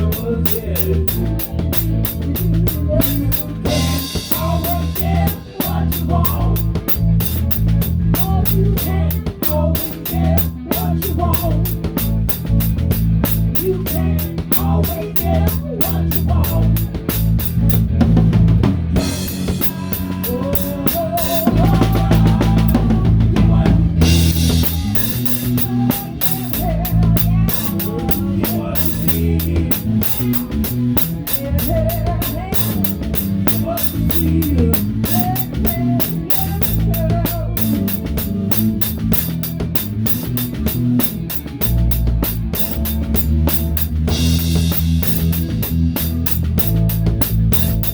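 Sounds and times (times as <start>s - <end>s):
drum kit beat: 0.0s - 47.9s
electric bass: 0.0s - 47.9s
electric guitar: 0.0s - 47.9s.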